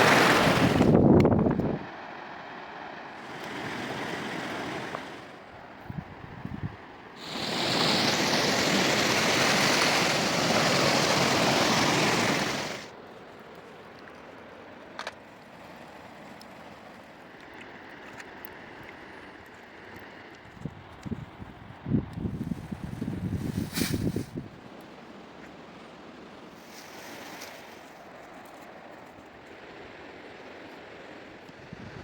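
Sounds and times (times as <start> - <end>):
river water rushing: 0.0 - 1.0, 1.9 - 5.8, 7.1 - 13.0.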